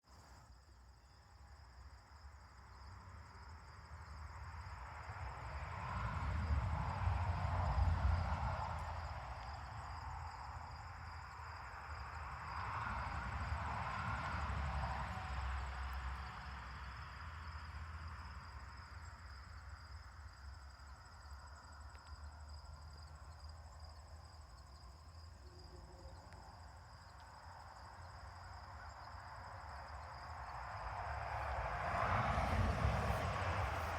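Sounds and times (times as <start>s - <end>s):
crickets trilling: 0.1s - 33.9s
rushing noise with low rumble: 30.3s - 33.9s.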